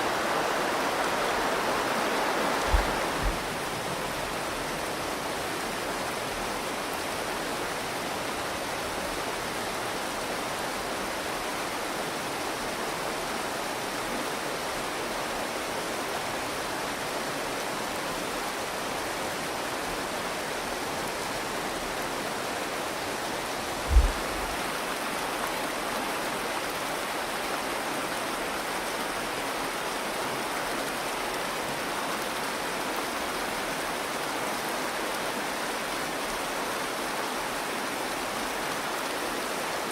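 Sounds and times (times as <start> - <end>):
river water rushing: 0.0 - 39.9
low thump: 2.6 - 3.7, 23.8 - 24.6.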